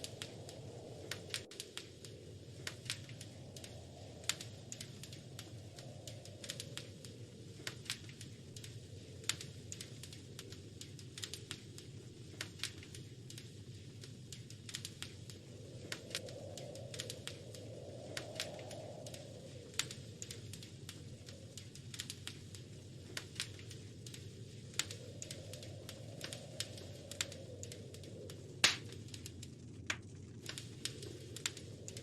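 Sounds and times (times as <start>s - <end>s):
rush of flames: 0.0s - 32.0s
wood fire crackling: 0.0s - 32.0s.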